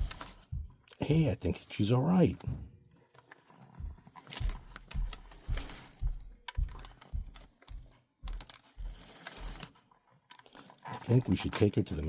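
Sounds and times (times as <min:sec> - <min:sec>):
model train clicking and knocking: 0:10.3 - 0:12.0.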